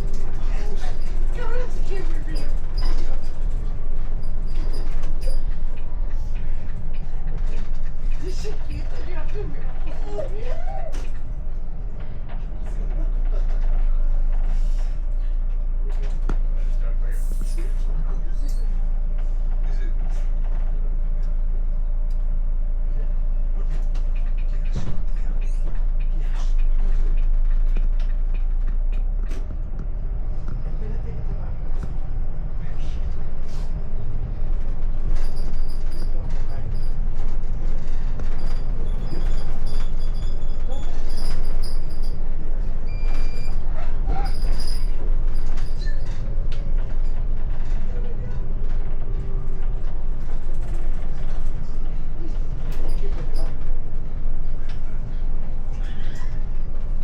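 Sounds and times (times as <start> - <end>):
car road and engine rumble: 0.0 - 57.0
creaks and clicks: 23.7 - 56.9.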